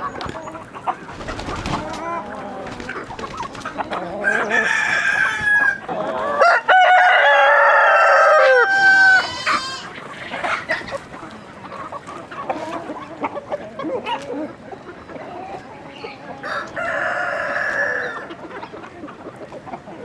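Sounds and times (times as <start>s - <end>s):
chickens clucking: 0.0s - 20.0s
rooster crowing: 4.2s - 9.9s, 16.4s - 18.3s.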